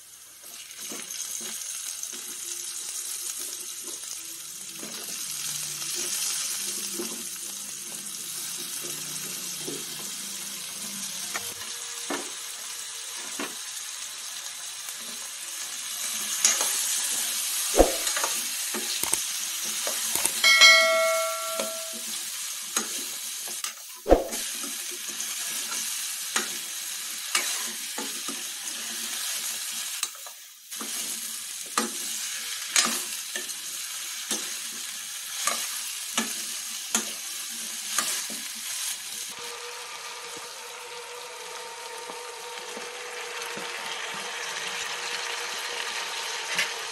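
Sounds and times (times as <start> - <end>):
vegetables sizzling in oil: 0.0 - 46.9
metallic ring: 20.4 - 22.0.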